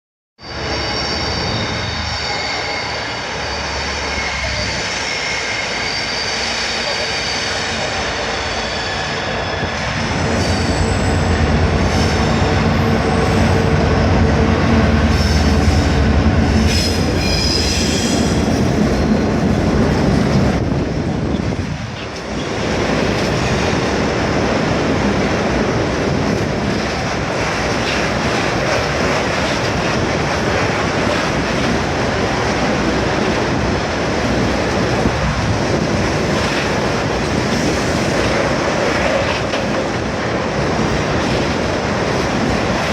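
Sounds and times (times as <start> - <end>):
high wheel squeal: 0.4 - 13.5, 16.6 - 18.7
diesel locomotive engine passing: 0.5 - 42.9.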